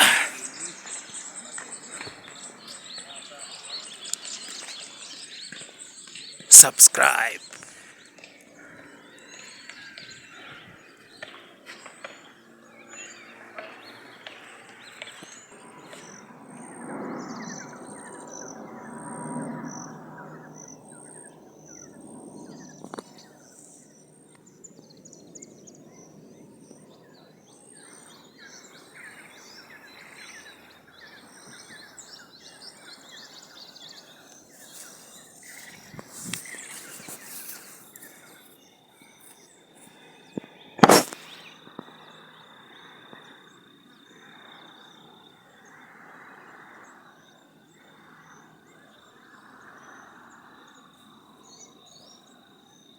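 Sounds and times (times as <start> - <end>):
outdoor background hiss: 6.5 - 7.4.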